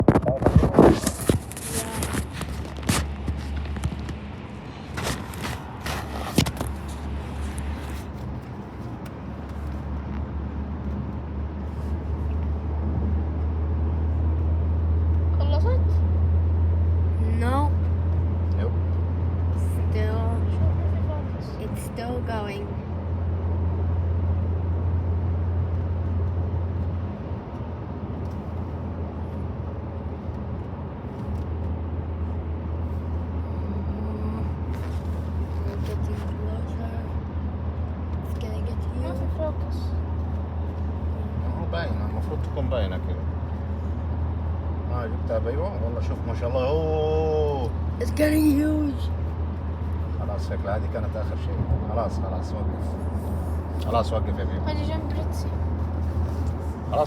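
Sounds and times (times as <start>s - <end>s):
vehicle engine rumble: 0.0s - 57.0s.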